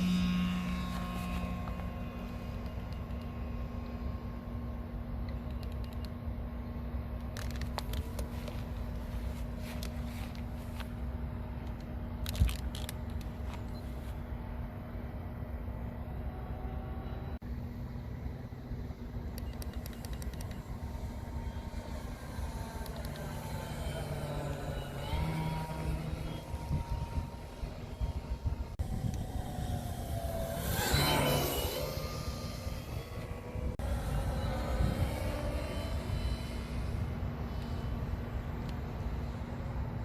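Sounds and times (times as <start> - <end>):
model airplane motor and propeller: 0.0 - 40.0
wind rumble on microphone: 19.4 - 40.0.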